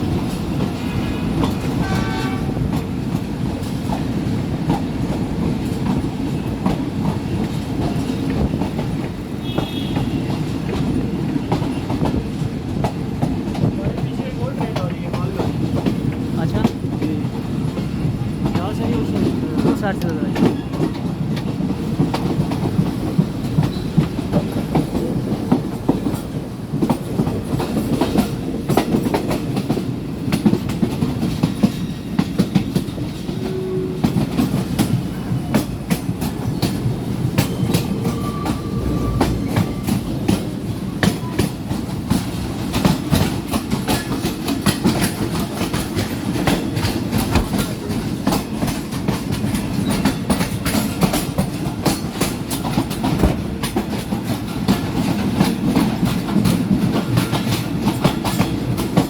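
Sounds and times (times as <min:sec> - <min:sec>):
train rumbling along track: 0:00.0 - 0:59.0
wheels clattering over rail joints: 0:34.0 - 0:59.0.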